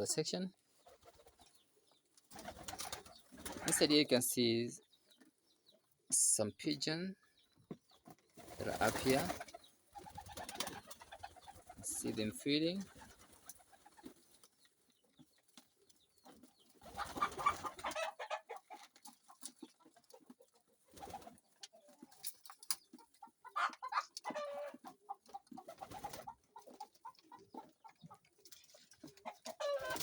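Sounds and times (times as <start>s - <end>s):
chickens clucking: 0.0s - 30.0s
pigeons cooing: 16.3s - 18.6s, 29.1s - 30.0s.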